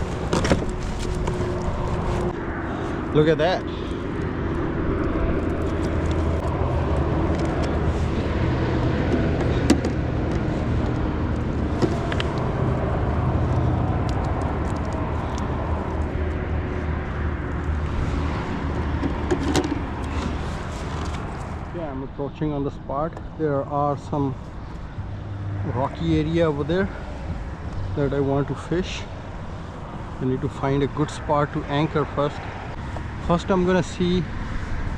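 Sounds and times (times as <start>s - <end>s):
low motor drone: 0.0s - 21.8s.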